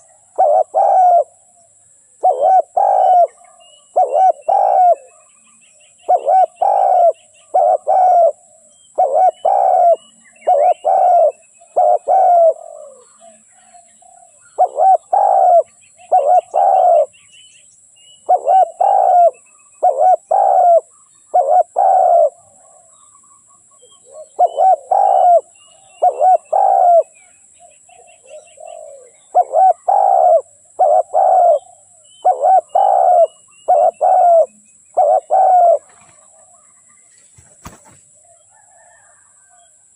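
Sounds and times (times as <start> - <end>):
dove cooing: 0.0 - 1.5, 2.2 - 5.3, 6.0 - 17.1, 18.2 - 23.1, 23.7 - 39.8.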